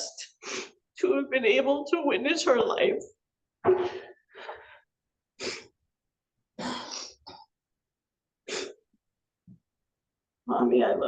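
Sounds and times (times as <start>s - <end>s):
woman breathing and sniffing: 0.2s - 0.8s.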